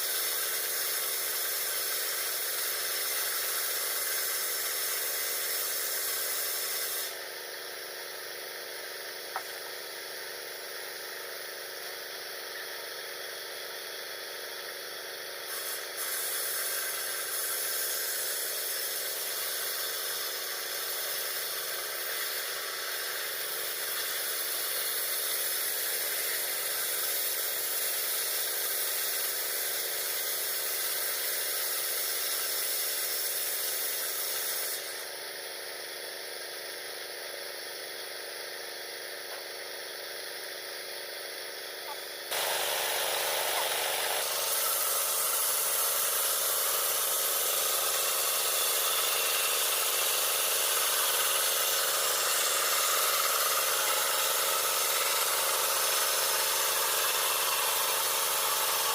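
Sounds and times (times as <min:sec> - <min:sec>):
power saw ripping wood: 0:42.3 - 0:58.9.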